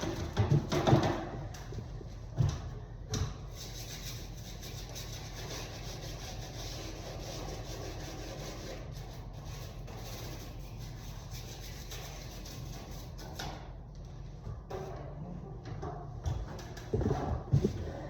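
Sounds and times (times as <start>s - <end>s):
brush scrubbing: 3.5s - 13.2s.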